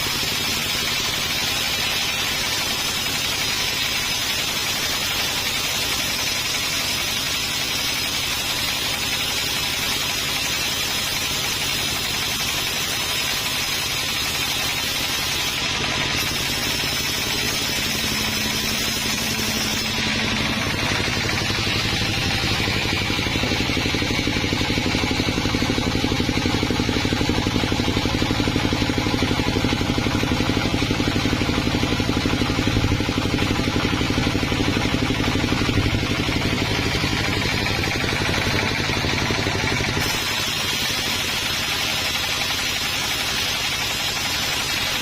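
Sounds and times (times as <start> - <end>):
sawmill engine running: 0.0 - 45.0.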